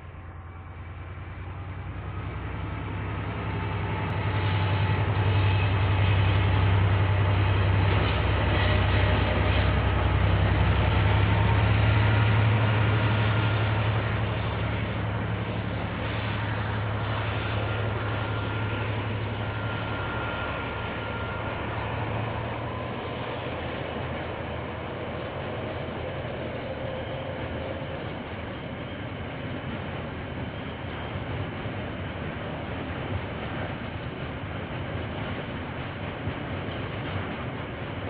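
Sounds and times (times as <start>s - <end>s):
diesel train passing: 0.0s - 38.0s
high wheel squeals: 8.0s - 28.1s.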